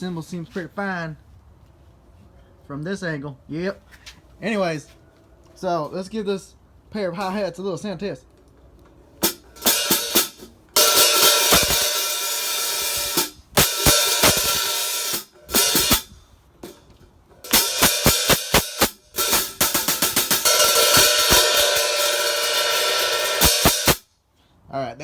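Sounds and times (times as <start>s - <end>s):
open hi-hat sizzle: 9.2s - 24.1s
closed hi-hat chick strokes: 9.7s - 16.2s, 17.5s - 24.0s.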